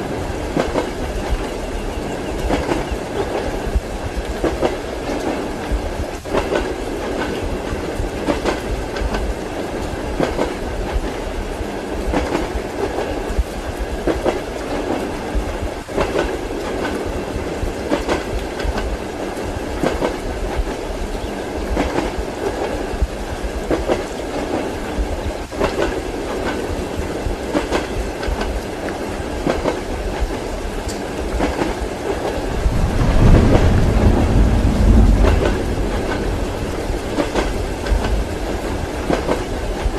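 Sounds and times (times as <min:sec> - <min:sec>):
rain: 0:00.0 - 0:39.9
train running rumble: 0:00.0 - 0:39.9
train wheels clacking: 0:00.4 - 0:11.2, 0:12.1 - 0:22.8, 0:25.4 - 0:39.9
deep loud rumble: 0:32.4 - 0:39.1.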